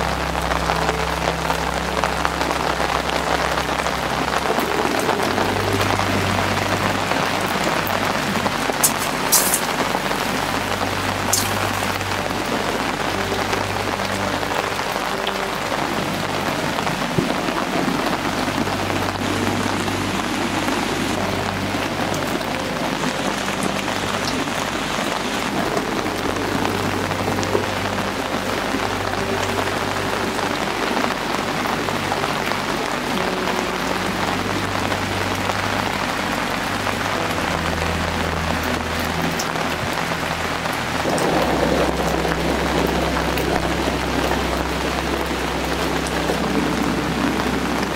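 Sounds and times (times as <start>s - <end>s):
steady rain falling: 0.0s - 47.9s
sharp raindrop taps: 0.7s - 33.7s.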